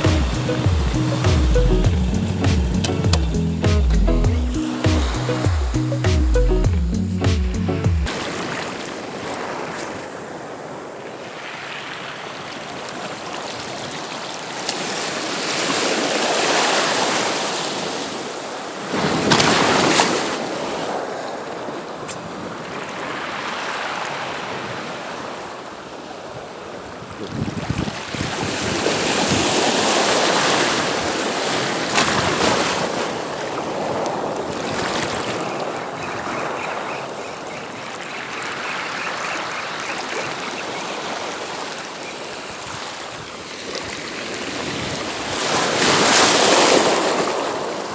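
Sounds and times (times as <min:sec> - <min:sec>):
sea waves washing onto shore: 0:00.0 - 0:06.3.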